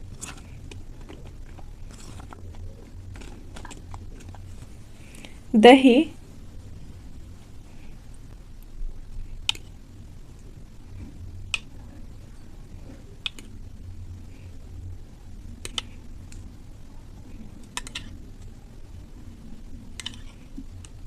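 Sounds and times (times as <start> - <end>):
soft squishing: 0.0 - 5.5.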